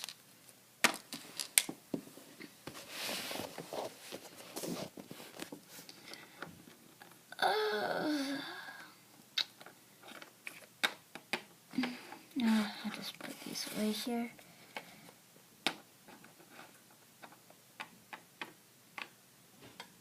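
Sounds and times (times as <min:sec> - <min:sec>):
small objects clicking and tapping: 0:00.0 - 0:00.2, 0:00.8 - 0:01.8, 0:16.9 - 0:20.0
rustling: 0:00.0 - 0:07.2.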